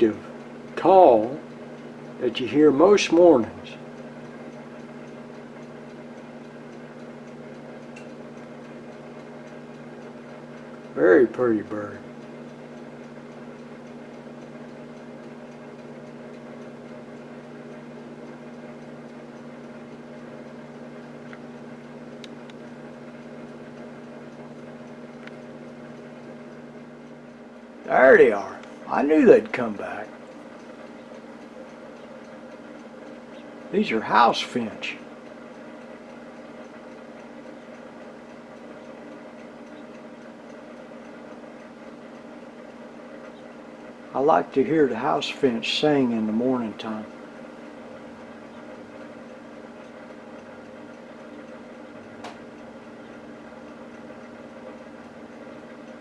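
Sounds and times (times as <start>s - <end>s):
fast regular ticking: 0.0s - 56.0s
low indoor hum: 0.0s - 56.0s
faint high ticks: 29.4s - 44.0s.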